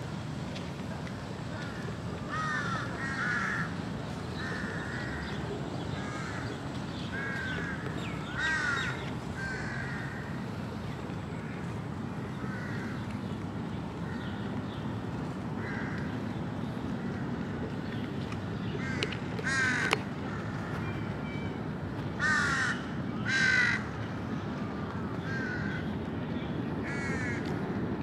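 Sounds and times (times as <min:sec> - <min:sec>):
bird calling: 0:04.3 - 0:10.4.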